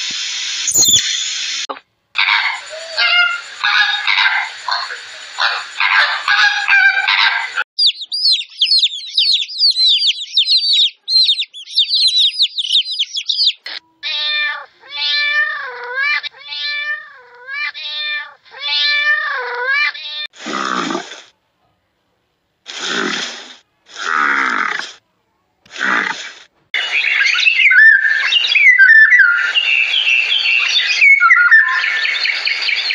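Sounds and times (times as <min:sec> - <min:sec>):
rapid high chirping: 0:00.7 - 0:01.4, 0:07.8 - 0:13.7
cats meowing: 0:14.0 - 0:20.3.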